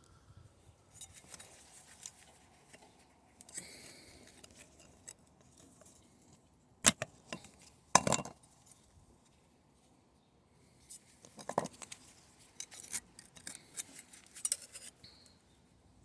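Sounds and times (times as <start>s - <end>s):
thin metal scraping: 11.4s - 15.0s.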